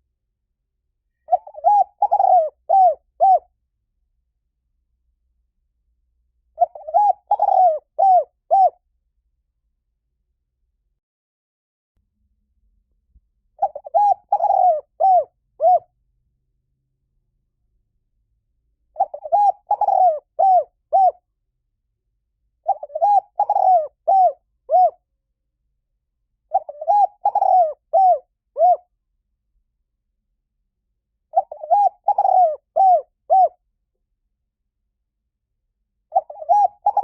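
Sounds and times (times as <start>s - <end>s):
dove cooing: 1.3s - 3.5s, 6.6s - 8.8s, 13.6s - 15.9s, 19.0s - 21.2s, 22.6s - 25.0s, 26.5s - 28.9s, 31.3s - 33.6s, 36.1s - 37.0s.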